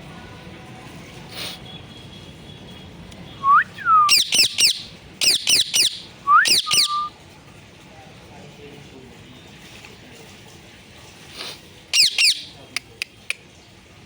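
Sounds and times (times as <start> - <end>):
parrot whistling: 3.4 - 7.1, 11.9 - 12.5
parrot shrieking: 4.1 - 7.1, 12.0 - 12.5.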